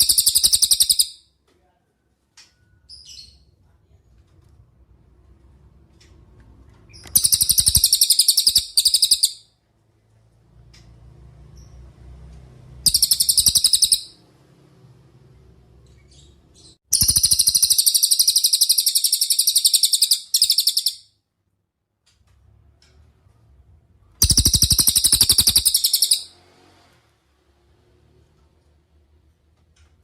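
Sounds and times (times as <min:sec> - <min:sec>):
bird rattling trills: 0:07.0 - 0:09.4, 0:12.9 - 0:14.2, 0:16.9 - 0:21.0, 0:24.2 - 0:26.3.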